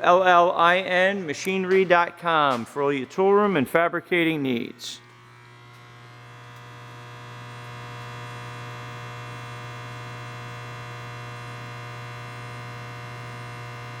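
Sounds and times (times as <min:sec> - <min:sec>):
milling machine humming and whining: 0:05.0 - 0:14.0.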